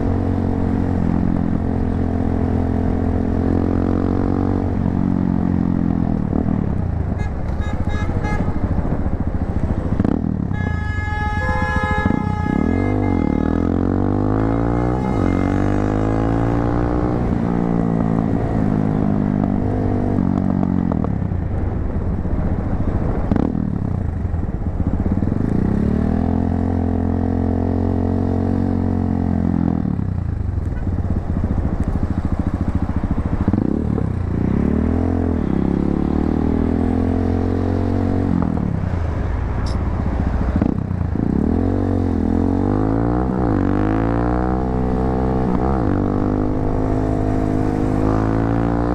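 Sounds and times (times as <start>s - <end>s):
motorcycle engine accelerating: 0.0s - 7.1s, 8.4s - 48.9s.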